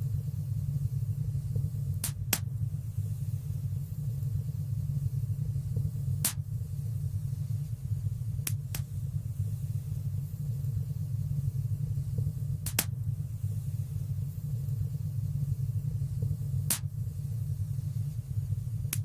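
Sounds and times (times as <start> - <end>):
fire low rumble: 0.0 - 19.0
sharp fire crackles: 12.6 - 12.9.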